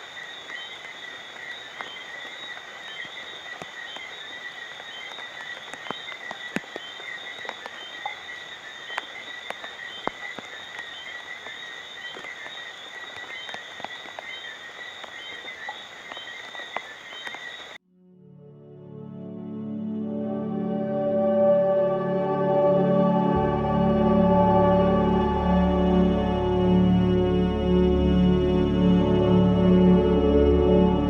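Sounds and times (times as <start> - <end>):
night creatures calling: 0.0 - 17.8
raindrops tapping: 0.0 - 17.8.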